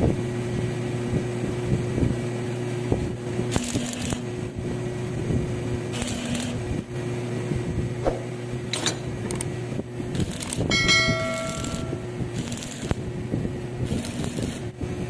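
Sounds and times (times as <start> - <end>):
steady electric hum: 0.0 - 15.0
metal knocking and scraping: 8.1 - 9.2, 10.7 - 12.1
steel clank ringing: 10.7 - 12.2.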